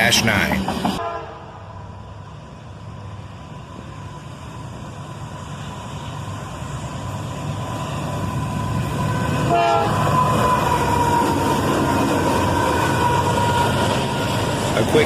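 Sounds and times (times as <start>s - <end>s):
freight train rumble: 0.0s - 15.0s
locomotive horn blast: 1.0s - 1.6s, 9.4s - 11.3s.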